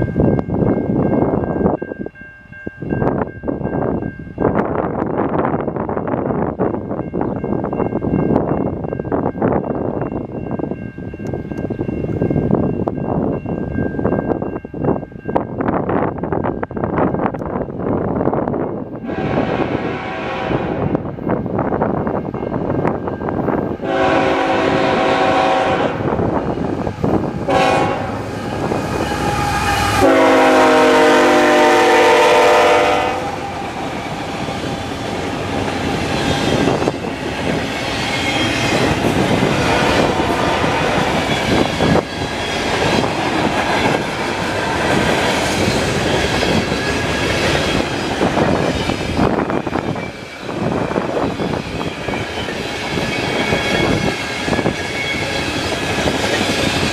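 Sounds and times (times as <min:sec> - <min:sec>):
wind noise on microphone: 0:00.0 - 0:56.9
locomotive air horn blasts: 0:19.0 - 0:21.0, 0:23.8 - 0:26.2, 0:27.4 - 0:28.3, 0:29.2 - 0:33.6
train wheels clacking on rails: 0:22.1 - 0:56.9.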